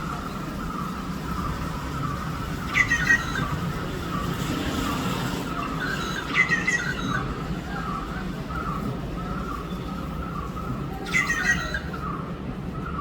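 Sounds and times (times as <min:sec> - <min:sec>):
birds chirping: 0:00.0 - 0:13.0
harsh bird squawks: 0:02.7 - 0:03.6, 0:05.7 - 0:07.3, 0:11.0 - 0:12.0.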